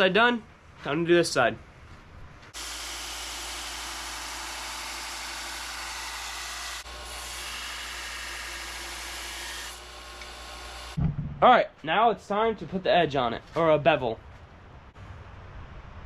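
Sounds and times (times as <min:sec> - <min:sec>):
belt sander grinding metal: 0:02.6 - 0:11.0
low motor hum: 0:11.0 - 0:11.4.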